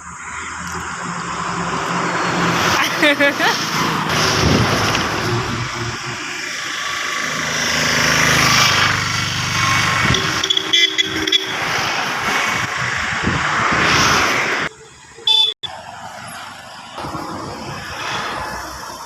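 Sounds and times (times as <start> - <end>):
road traffic: 0.0 - 19.0
vehicle engine passing: 0.5 - 15.1
vehicle horn blasts: 10.0 - 11.7, 15.2 - 15.7.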